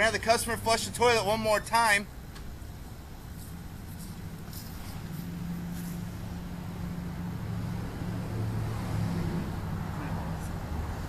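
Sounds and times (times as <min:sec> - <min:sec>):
low mechanical hum: 0:00.0 - 0:08.8.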